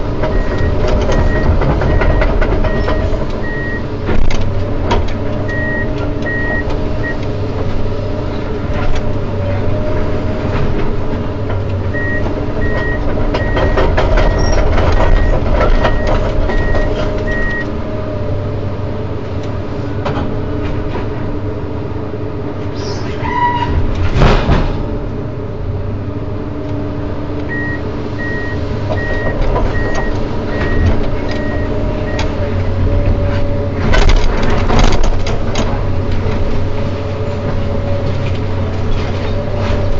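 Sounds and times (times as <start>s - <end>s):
excavator diesel engine running: 0.0s - 39.9s
warning alarm beeps: 5.5s - 7.2s, 12.0s - 17.7s, 27.5s - 32.4s.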